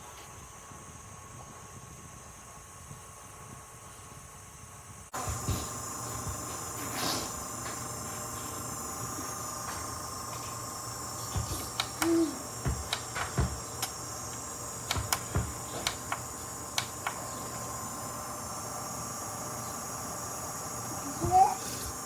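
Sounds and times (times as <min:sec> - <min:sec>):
air cooler fan humming: 0:00.0 - 0:22.0
sharp clicks: 0:11.7 - 0:12.2, 0:12.8 - 0:17.3
dull knocks: 0:12.6 - 0:13.6.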